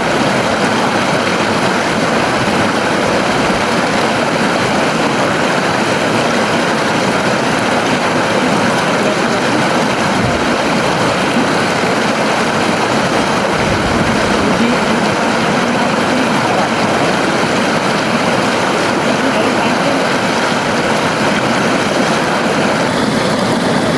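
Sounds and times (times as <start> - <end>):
river water rushing: 0.0 - 23.9.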